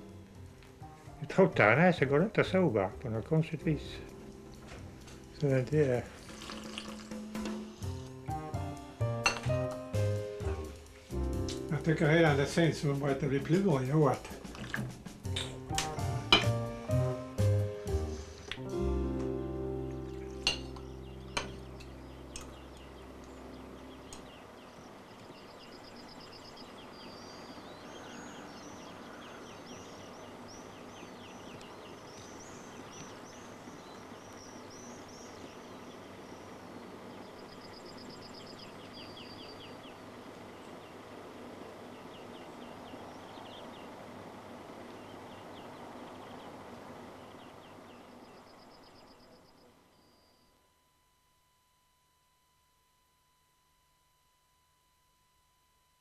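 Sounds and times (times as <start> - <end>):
music: 0.0 - 24.2
small birds singing: 0.0 - 50.7.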